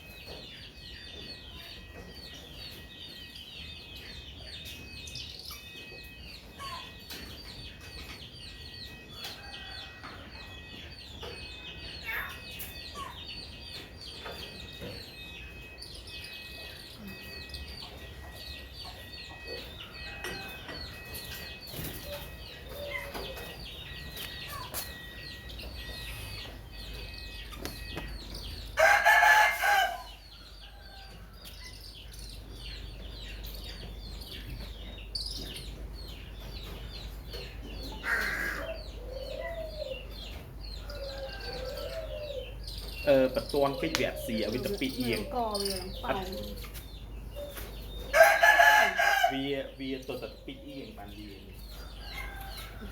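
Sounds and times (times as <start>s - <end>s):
birds chirping: 0.0s - 52.9s
rooster crowing: 28.8s - 31.3s, 40.8s - 42.5s, 48.1s - 49.6s, 51.8s - 52.9s.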